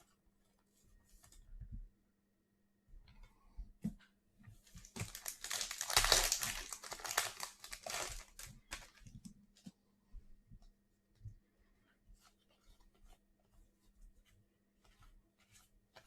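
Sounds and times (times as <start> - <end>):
plastic wrapper crinkling and tearing: 4.8 - 9.1.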